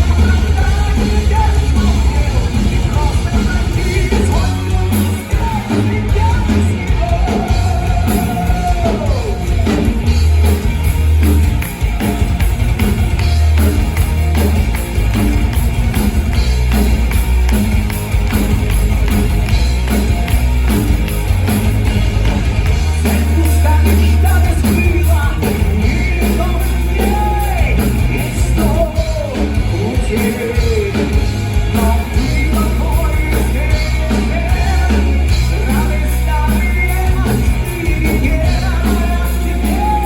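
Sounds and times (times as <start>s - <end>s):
person singing lead vocal: 0.0s - 10.1s, 22.8s - 40.0s
drums: 0.0s - 40.0s
heavy bass: 0.0s - 40.0s.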